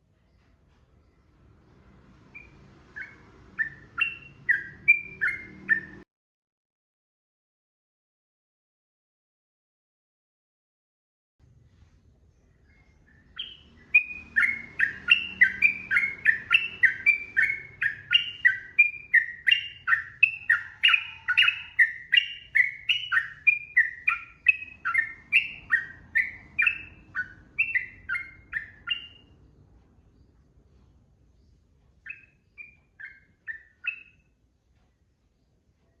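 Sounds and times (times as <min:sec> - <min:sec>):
bird chattering song: 0:02.3 - 0:06.0, 0:12.4 - 0:30.4, 0:31.3 - 0:34.4.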